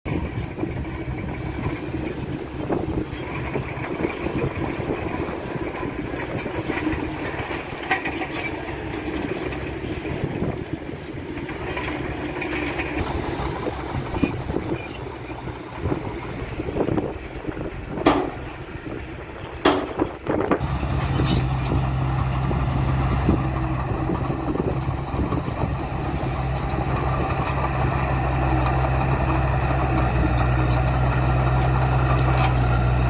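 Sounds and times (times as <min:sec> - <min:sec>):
heavy machinery diesel engine: 0:00.1 - 0:33.0
knocks and rattles: 0:11.5 - 0:18.6, 0:19.4 - 0:33.0.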